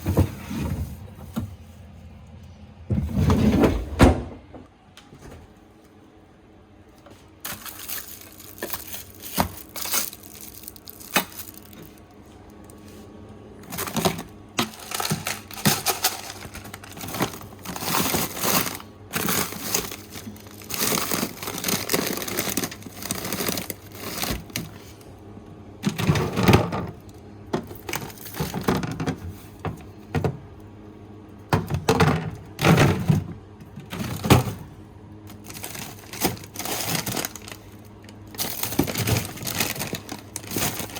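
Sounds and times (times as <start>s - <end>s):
containers clacking: 7.4s - 12.0s, 13.6s - 24.8s, 25.8s - 30.4s, 35.3s - 40.9s
plastic packaging crinkling: 7.4s - 12.8s, 13.6s - 25.0s, 27.7s - 28.7s, 35.3s - 40.9s.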